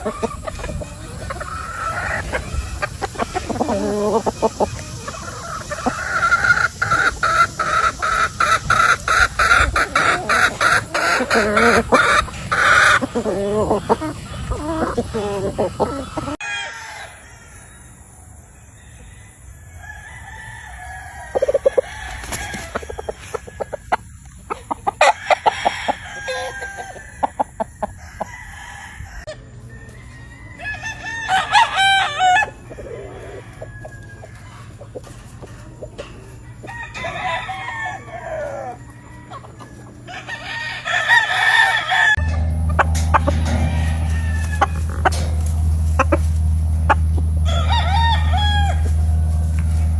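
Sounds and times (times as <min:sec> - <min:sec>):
chickens clucking: 0:00.0 - 0:49.9
roosters crowing: 0:00.0 - 0:49.9
steady low hum: 0:41.6 - 0:49.9.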